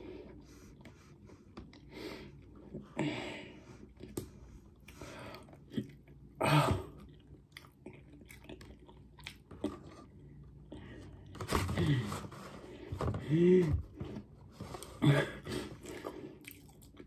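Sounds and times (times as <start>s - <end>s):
person chewing: 3.8s - 10.9s, 15.5s - 17.0s.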